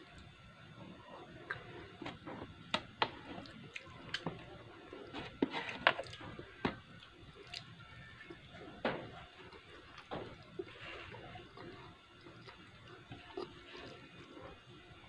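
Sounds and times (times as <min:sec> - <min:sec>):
wet chewing: 0:09.4 - 0:14.4.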